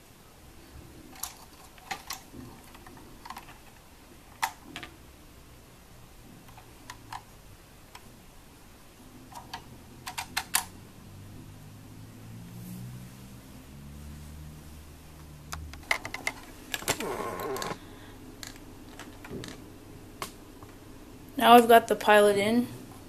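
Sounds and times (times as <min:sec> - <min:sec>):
plastic toy bricks clicking: 0:01.2 - 0:03.5, 0:09.3 - 0:10.7.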